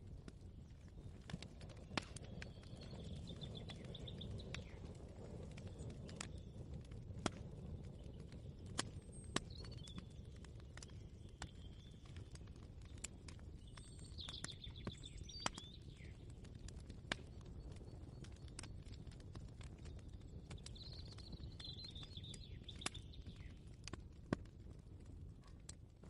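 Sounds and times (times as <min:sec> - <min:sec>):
bird chirps: 0:02.2 - 0:04.9, 0:20.6 - 0:23.6.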